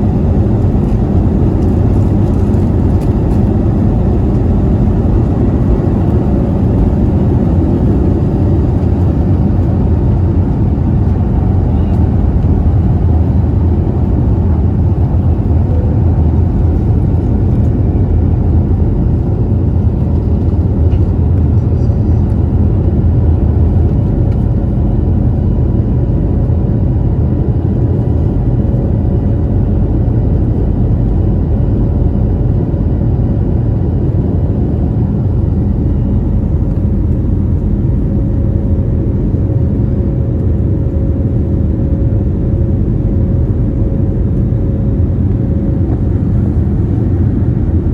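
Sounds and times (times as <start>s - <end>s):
faint steady whine: 0.0s - 47.9s
rumble of engines and airflow: 0.0s - 47.9s.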